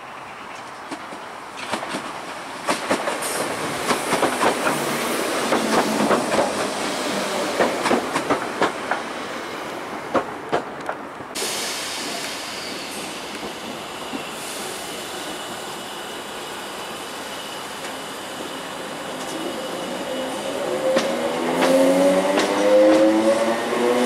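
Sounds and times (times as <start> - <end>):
train wheels clacking over joints: 0.9 - 9.1, 20.8 - 23.2.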